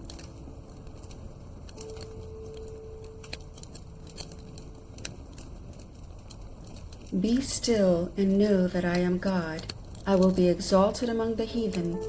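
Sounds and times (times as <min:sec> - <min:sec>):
held music note: 0:00.0 - 0:05.1
wood fire crackling: 0:00.0 - 0:12.0.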